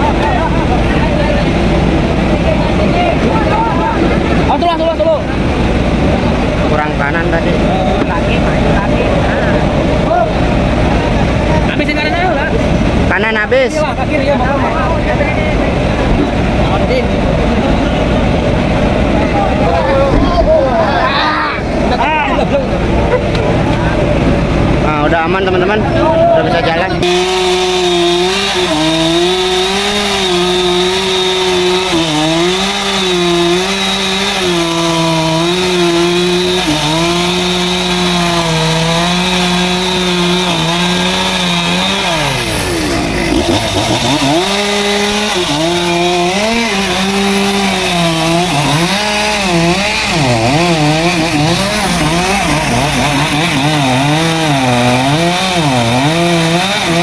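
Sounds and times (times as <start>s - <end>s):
chainsaw cutting wood: 27.0s - 57.0s.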